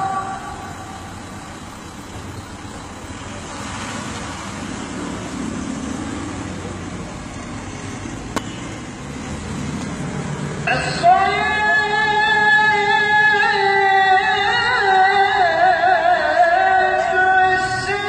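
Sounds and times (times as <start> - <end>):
chanted call to prayer: 0.0 - 2.8, 10.7 - 18.0
city traffic hum: 0.0 - 18.0.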